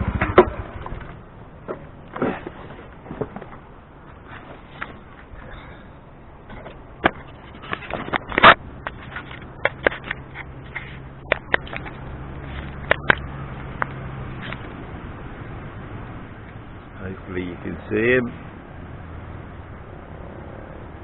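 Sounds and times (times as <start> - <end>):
sharp clicks and scrapes: 6.5 - 14.8.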